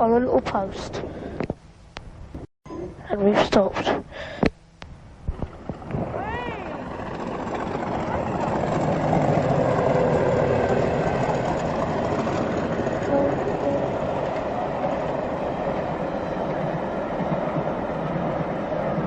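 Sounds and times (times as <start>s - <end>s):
wheels clattering over rail joints: 5.4s - 16.0s
diesel train rumbling past: 5.4s - 19.0s.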